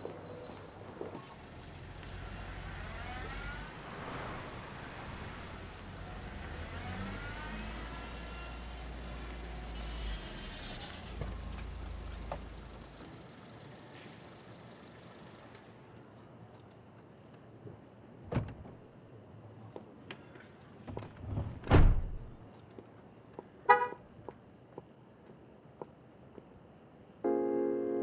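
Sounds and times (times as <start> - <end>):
vehicles passing by: 0.1 - 17.3.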